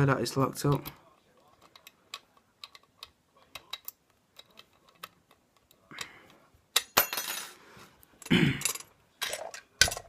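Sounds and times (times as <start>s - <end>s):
lock-picking tools clicking: 0.7s - 6.1s.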